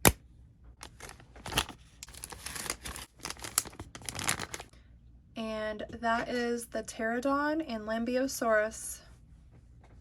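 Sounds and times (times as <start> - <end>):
plastic toys and packaging rustling: 0.8 - 4.7.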